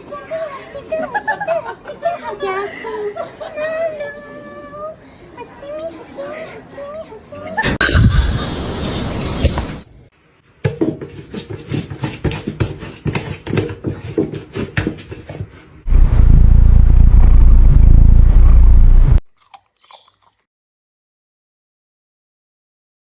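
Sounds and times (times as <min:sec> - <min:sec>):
very loud low rumble: 0:15.9 - 0:19.2
crunchy chewing: 0:19.3 - 0:20.5.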